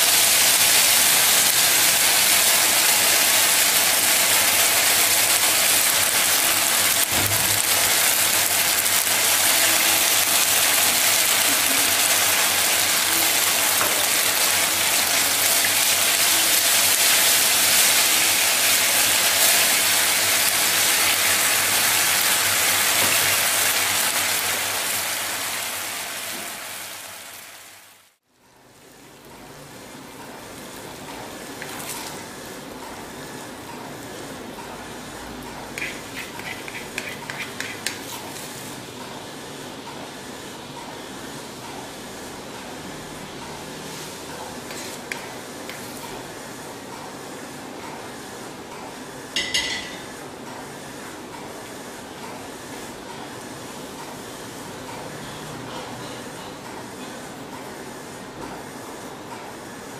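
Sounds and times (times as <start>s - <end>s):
meat sizzling in a wok: 0.0s - 28.0s.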